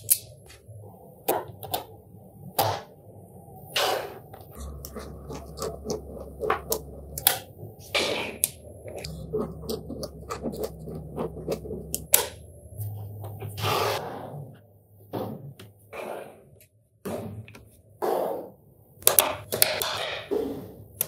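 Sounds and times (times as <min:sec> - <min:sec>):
balls scraping on surface: 0:03.8 - 0:17.4.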